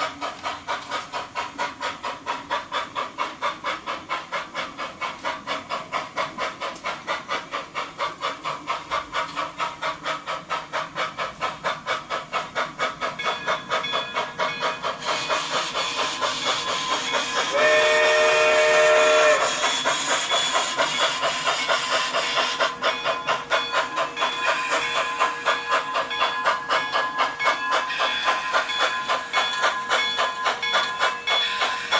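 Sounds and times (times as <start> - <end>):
model steam locomotive chuffing: 0.0 - 31.9
steam hissing: 0.0 - 31.9
locomotive whistle: 15.1 - 20.8.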